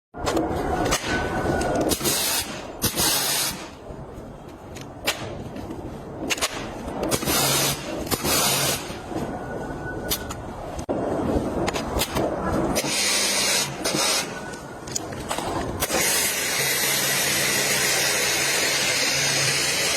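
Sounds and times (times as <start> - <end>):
pressure washer spraying: 1.9 - 3.7, 7.1 - 8.9, 15.8 - 19.9
sharp clicks and knocks: 4.7 - 8.4.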